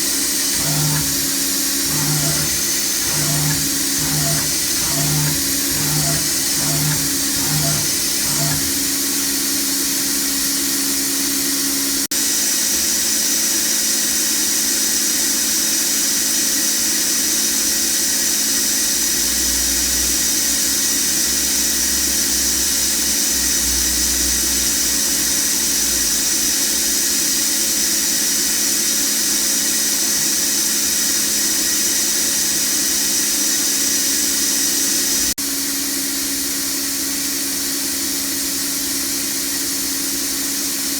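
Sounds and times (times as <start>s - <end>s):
machine hum: 0.3s - 9.4s
spindle high whine: 0.5s - 9.2s.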